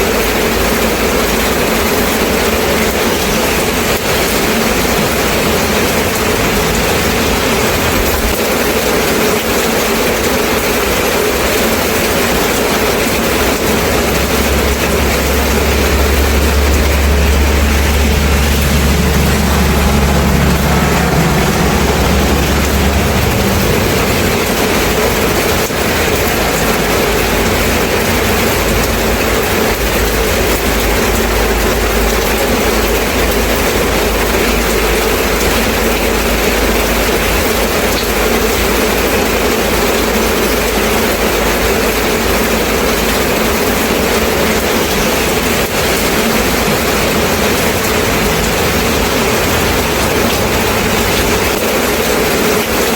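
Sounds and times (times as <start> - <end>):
steady rain falling: 0.0 - 52.9
low rumble: 2.8 - 9.2, 11.4 - 37.3, 44.6 - 52.6.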